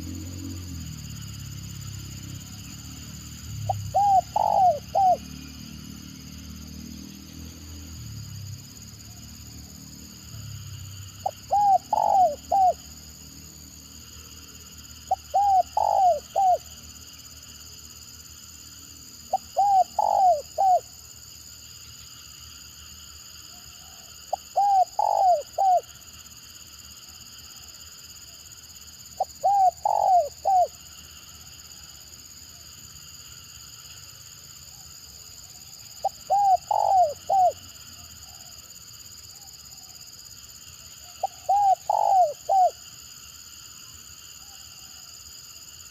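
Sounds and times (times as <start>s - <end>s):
dove cooing: 3.7s - 5.4s, 11.2s - 12.9s, 15.1s - 16.7s, 19.3s - 20.9s, 23.8s - 25.9s, 29.2s - 30.8s, 36.0s - 38.5s, 41.2s - 42.8s.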